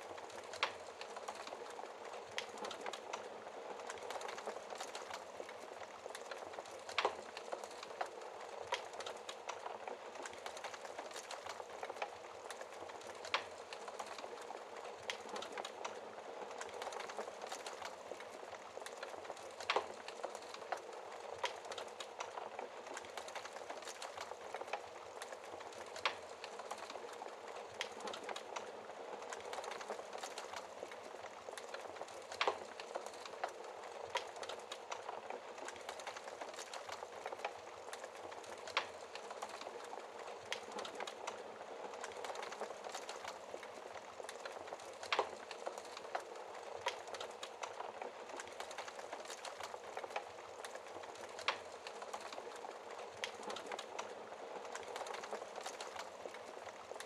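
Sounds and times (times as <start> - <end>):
fire crackling and popping: 0.0 - 57.0
wood fire hissing: 0.0 - 57.0.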